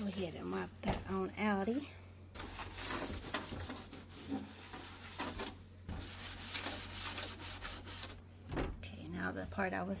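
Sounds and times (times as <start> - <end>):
scrubbing and scraping: 2.4 - 8.2.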